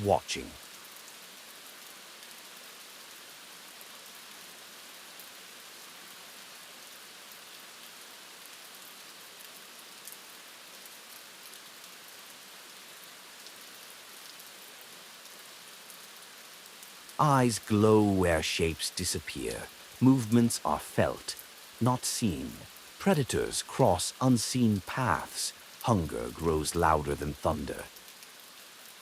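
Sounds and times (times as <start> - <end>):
steady rain falling: 0.0 - 29.0
raindrop ticks: 16.6 - 29.0.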